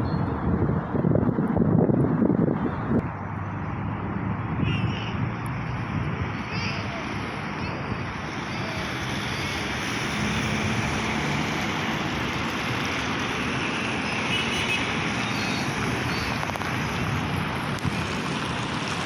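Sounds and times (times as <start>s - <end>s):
road traffic with trucks passing: 0.0s - 19.0s.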